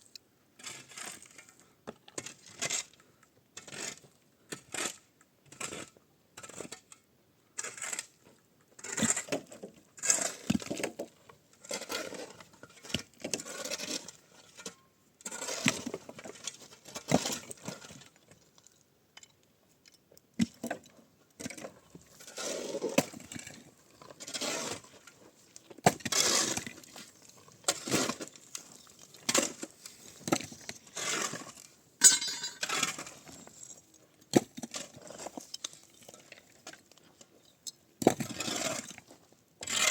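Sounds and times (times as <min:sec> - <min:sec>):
knocks clinks and scrapes: 0:20.7 - 0:39.9.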